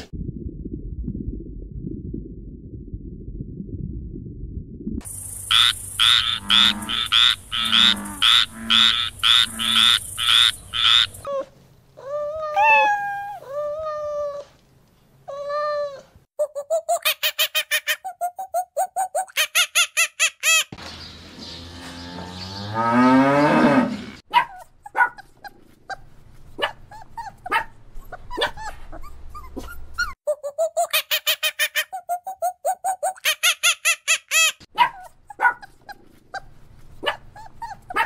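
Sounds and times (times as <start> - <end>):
lynx mewing calls: 5.5 - 11.3.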